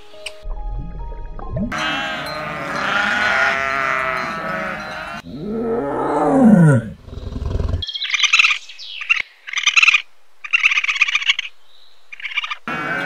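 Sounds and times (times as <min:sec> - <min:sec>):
goats bleating: 0:01.7 - 0:05.2, 0:12.7 - 0:13.0
tiger roaring: 0:01.7 - 0:07.8
raccoon chirping: 0:07.8 - 0:11.5, 0:12.1 - 0:12.6.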